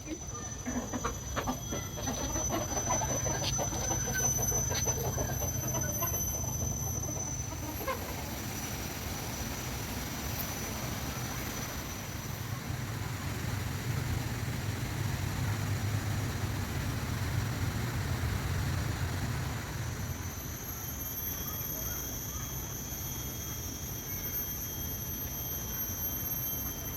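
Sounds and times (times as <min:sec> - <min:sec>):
chickens clucking: 0:00.0 - 0:08.7.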